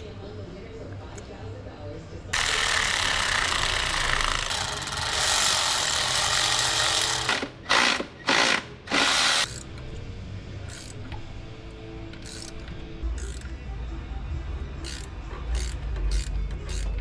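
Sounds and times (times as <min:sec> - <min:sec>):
power tool running: 0:02.4 - 0:09.5.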